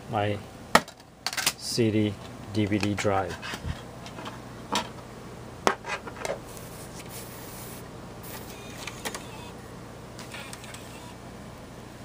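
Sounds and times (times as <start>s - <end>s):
computer low hum: 1.6s - 12.0s
disc drive tray clicks and whir: 8.3s - 9.6s, 10.2s - 11.2s.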